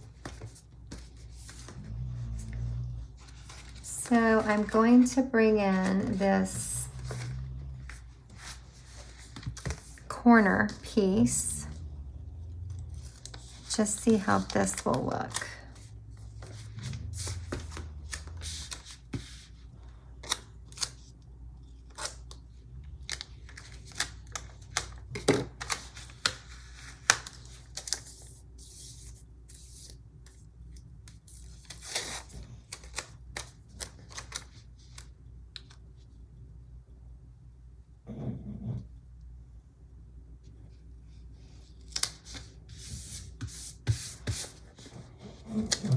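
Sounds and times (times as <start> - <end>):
paper rustling: 0.0 - 10.1, 12.9 - 19.6.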